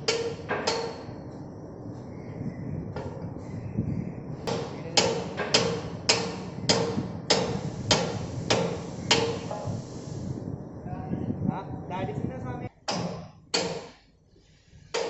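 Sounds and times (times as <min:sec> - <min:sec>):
hammer striking metal: 0:00.0 - 0:01.1, 0:04.4 - 0:09.6.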